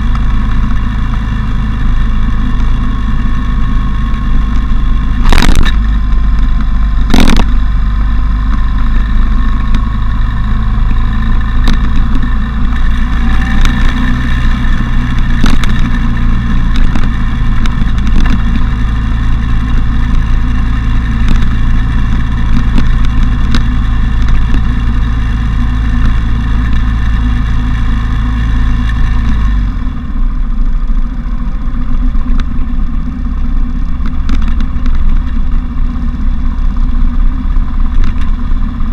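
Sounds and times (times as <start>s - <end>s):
wind noise on microphone: 0.0s - 30.0s
motorcycle engine rumble: 0.0s - 38.9s.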